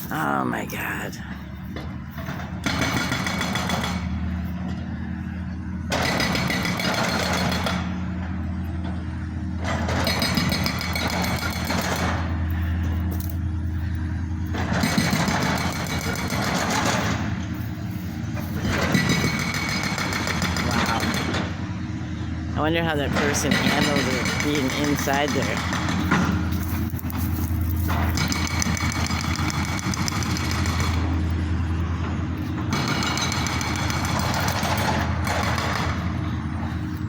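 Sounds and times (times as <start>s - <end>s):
low engine drone: 0.0s - 37.0s
pavement breaker hammering: 2.2s - 4.2s, 5.9s - 8.1s, 9.6s - 12.3s, 14.5s - 17.5s, 18.6s - 21.6s, 23.0s - 31.3s, 32.0s - 36.6s.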